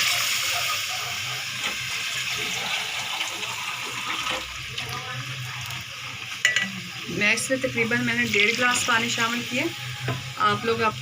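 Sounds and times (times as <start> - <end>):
water poured into hot oil hissing: 0.0 - 6.4.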